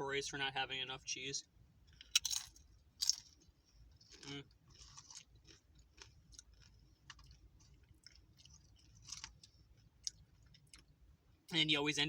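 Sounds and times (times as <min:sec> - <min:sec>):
chewing crunchy chips: 0:01.8 - 0:11.0.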